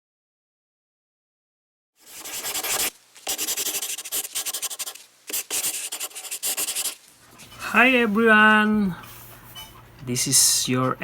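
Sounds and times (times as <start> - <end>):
scratchy rubbing: 2.0 - 7.6.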